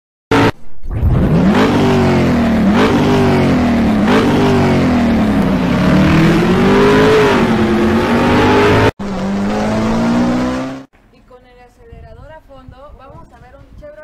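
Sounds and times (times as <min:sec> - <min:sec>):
car engine accelerating: 0:00.3 - 0:10.9.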